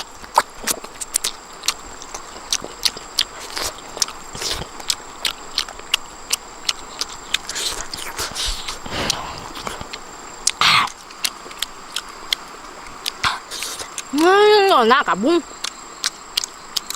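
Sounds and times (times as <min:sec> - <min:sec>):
people eating and chewing: 0:00.0 - 0:16.9.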